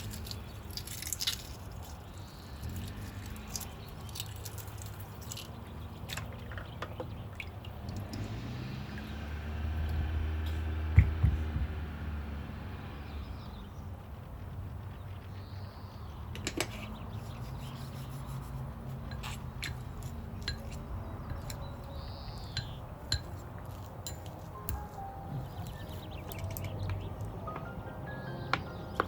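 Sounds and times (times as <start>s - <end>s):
dishes and utensils clinking: 19.0s - 27.6s.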